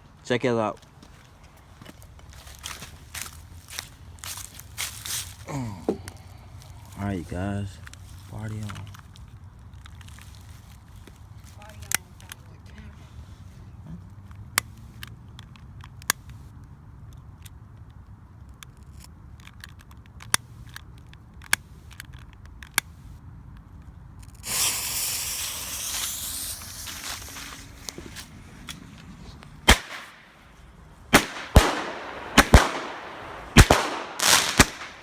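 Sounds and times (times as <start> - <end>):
firework hissing rush: 24.4 - 35.0
firework pops: 24.4 - 35.0
loud sharp firework bangs: 24.4 - 35.0.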